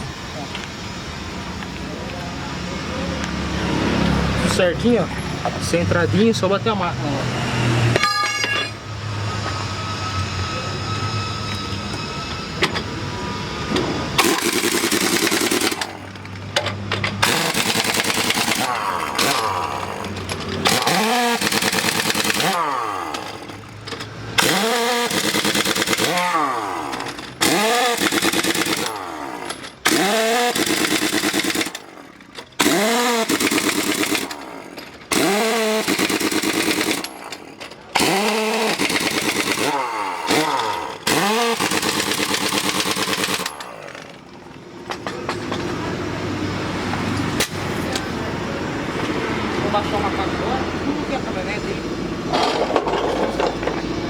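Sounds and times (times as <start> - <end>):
pneumatic impact wrench: 7.5 - 45.7, 47.0 - 48.0.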